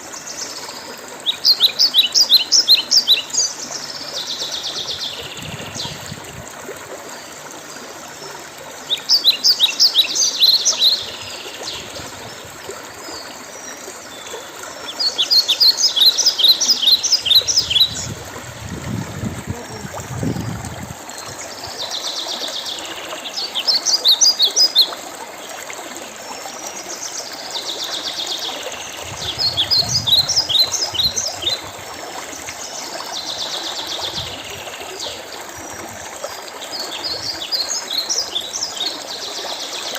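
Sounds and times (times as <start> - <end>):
water trickling: 0.0 - 39.9
songbird singing: 1.2 - 6.2, 8.9 - 25.0, 26.6 - 35.3.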